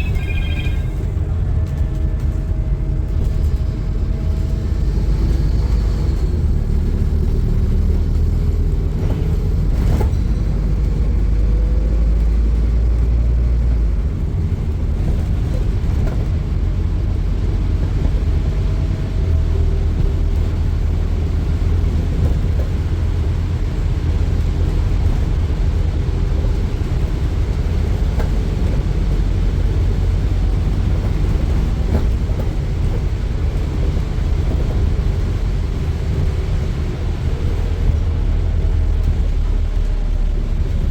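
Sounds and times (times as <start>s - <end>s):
diesel bus engine rumbling: 0.0s - 40.9s.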